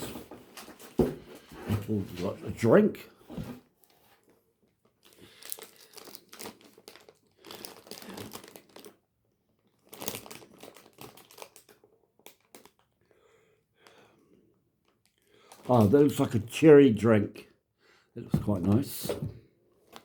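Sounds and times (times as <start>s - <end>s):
plastic packaging crinkling: 4.9s - 9.0s, 9.6s - 13.0s, 14.8s - 16.2s.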